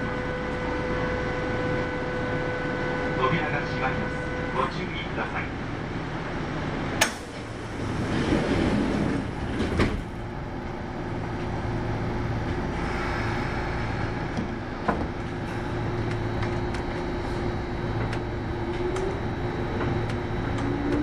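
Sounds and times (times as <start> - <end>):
train equipment humming: 0.0 - 21.0
train doors closing with air rush: 7.0 - 10.3, 12.4 - 21.0.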